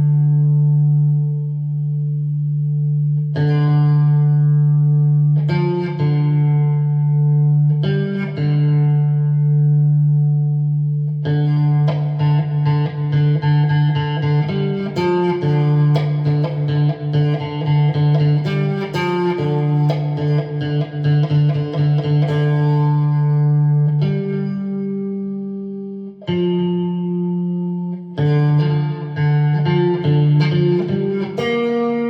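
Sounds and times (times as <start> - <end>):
electric guitar melody: 0.0 - 32.0.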